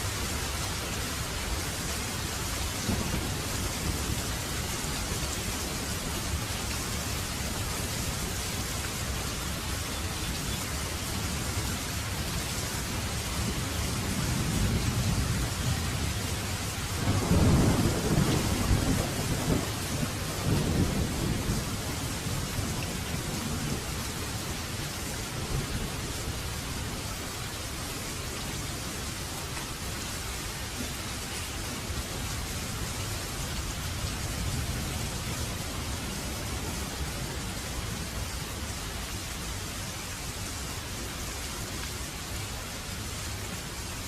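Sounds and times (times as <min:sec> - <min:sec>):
steady rain: 0:00.0 - 0:44.0
thunder rumbling: 0:02.8 - 0:06.4, 0:13.4 - 0:24.6.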